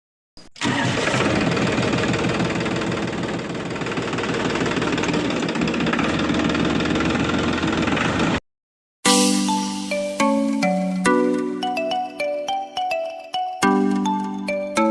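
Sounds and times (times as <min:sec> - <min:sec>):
small tractor motor rattling: 0:00.6 - 0:08.4.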